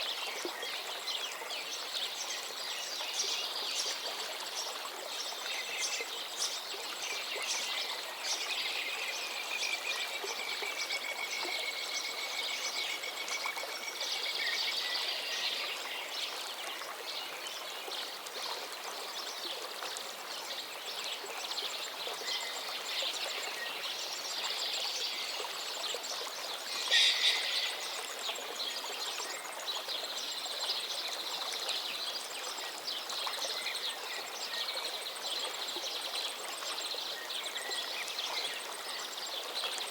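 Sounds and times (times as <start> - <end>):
flowing river water: 0.0 - 39.9
birds singing and calling: 26.6 - 29.4
loud sharp bird call: 26.9 - 28.0.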